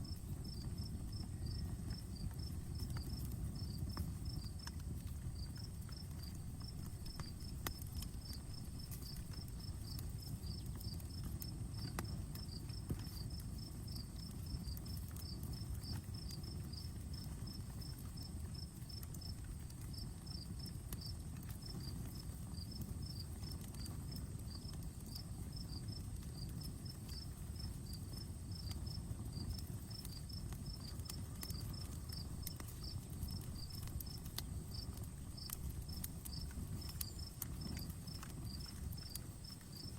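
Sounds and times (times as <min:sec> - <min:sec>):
insect chirping: 0:00.0 - 0:04.4, 0:29.4 - 0:39.9
wood fire rumbling and crackling: 0:00.0 - 0:39.9.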